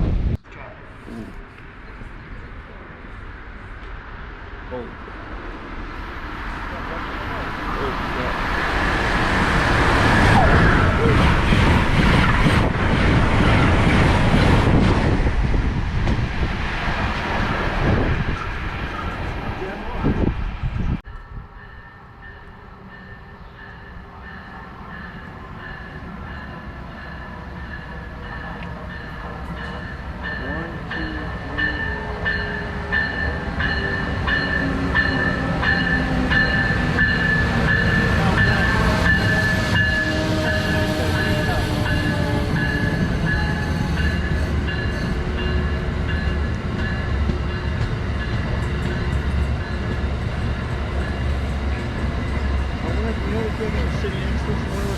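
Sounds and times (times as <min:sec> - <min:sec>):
wind buffeting microphone: 0:00.0 - 0:00.5, 0:07.1 - 0:21.6
train rumbling past on rails: 0:00.0 - 0:54.9
regular rail clicks: 0:21.0 - 0:54.9.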